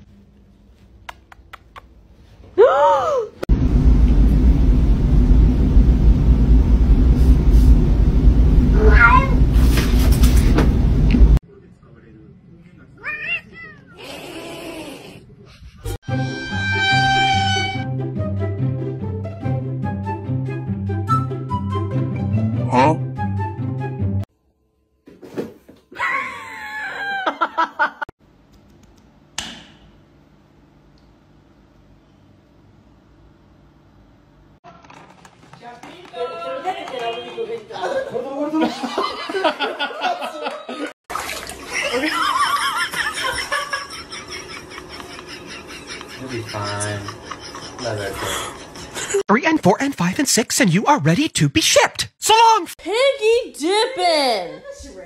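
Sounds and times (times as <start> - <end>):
loud steady low rumble: 3.5 - 11.4
cat meowing: 8.7 - 9.5, 13.0 - 15.0
click: 30.9 - 31.1.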